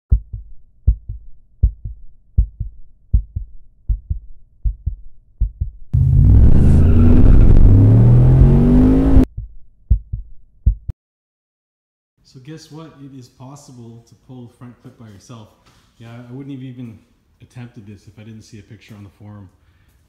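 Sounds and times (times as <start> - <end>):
deep double thumps: 0.1 - 10.9
engine accelerating hard: 6.0 - 9.3.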